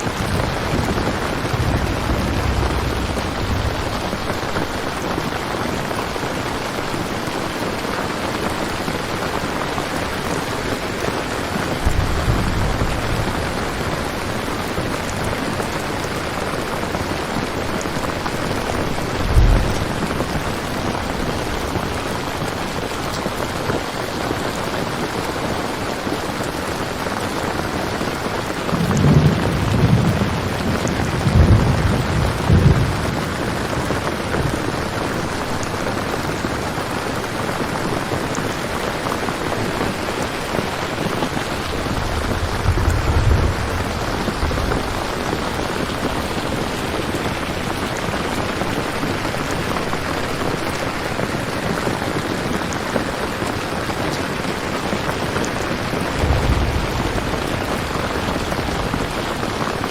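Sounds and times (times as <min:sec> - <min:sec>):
low rolls of thunder: 0:00.0 - 0:07.0, 0:09.8 - 0:23.4, 0:27.9 - 0:37.3, 0:39.4 - 0:48.7, 0:54.9 - 0:59.9
heavy rainfall: 0:00.0 - 0:59.9.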